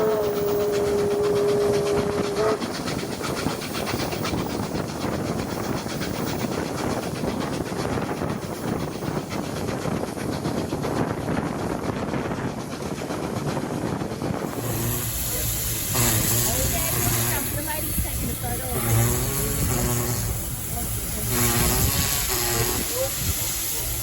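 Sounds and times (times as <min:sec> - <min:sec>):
steam locomotive exhaust beat: 0:00.0 - 0:24.0
train running noise: 0:00.0 - 0:24.0.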